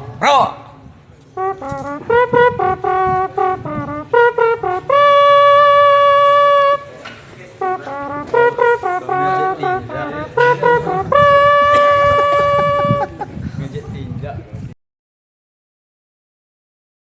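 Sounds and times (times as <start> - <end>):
man imitating bugle with mouth: 7.9 - 13.1.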